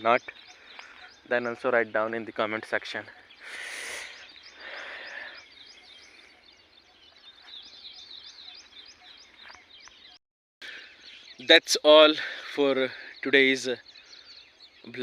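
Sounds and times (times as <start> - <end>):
small bird chirping rapidly: 0.0 - 10.2
outdoor background noise: 0.0 - 15.0.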